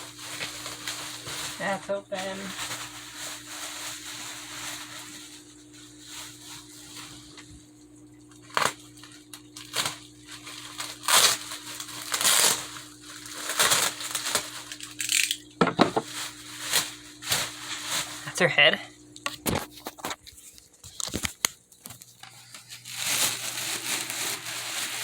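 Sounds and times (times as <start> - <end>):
packaging rustling and crackling: 0.0 - 7.6, 8.4 - 18.4, 19.4 - 25.0.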